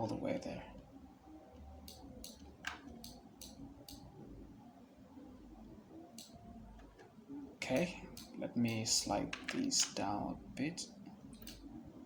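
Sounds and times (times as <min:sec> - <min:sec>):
low steady hum: 0:00.0 - 0:12.0
mouse and keyboard clicks: 0:01.8 - 0:04.1, 0:06.2 - 0:07.1, 0:07.7 - 0:10.0, 0:11.3 - 0:11.7.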